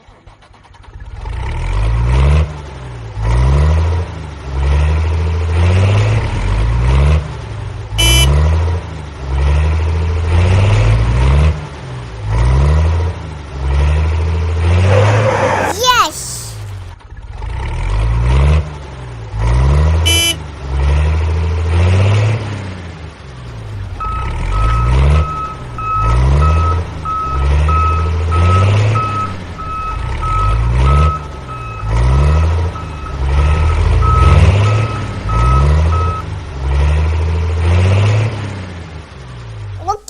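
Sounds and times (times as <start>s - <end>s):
heavy vehicle engine revving: 0.0s - 15.7s, 16.6s - 39.8s
reversing alarm beeping: 8.0s - 8.3s, 20.1s - 20.4s, 24.0s - 36.3s.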